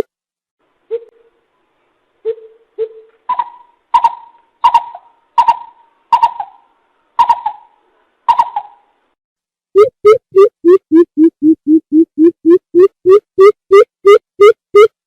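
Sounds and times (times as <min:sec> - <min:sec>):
bird hooting calls: 0:02.2 - 0:08.9.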